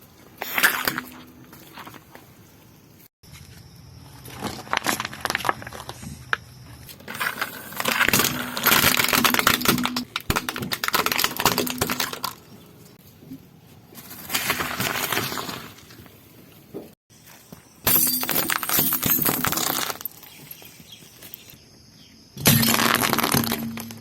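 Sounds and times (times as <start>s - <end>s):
objects crushed under car tyre: 4.2s - 6.0s, 7.0s - 12.6s, 14.0s - 16.0s, 17.8s - 20.3s, 22.4s - 24.0s.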